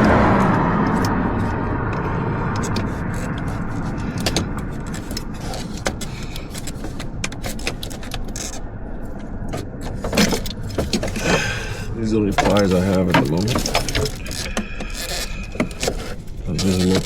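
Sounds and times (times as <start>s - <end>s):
steady low rumble: 0.0s - 16.8s
hand tools clattering: 9.5s - 17.0s.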